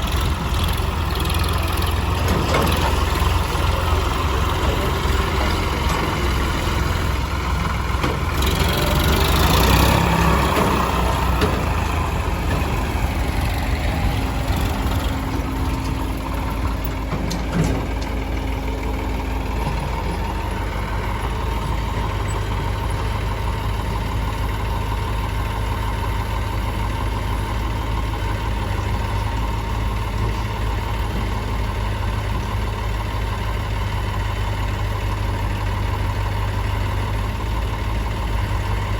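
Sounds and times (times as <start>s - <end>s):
heavy diesel engines idling: 0.0s - 38.9s.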